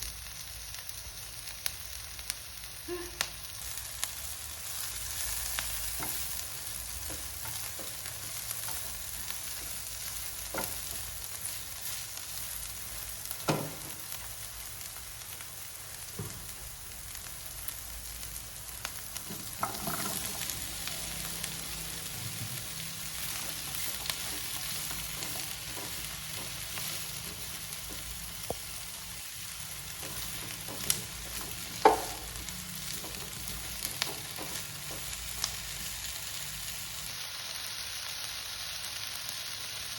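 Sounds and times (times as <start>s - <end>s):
food sizzling in a pan: 0.0s - 39.9s
utensil knocking against pan: 30.0s - 32.4s.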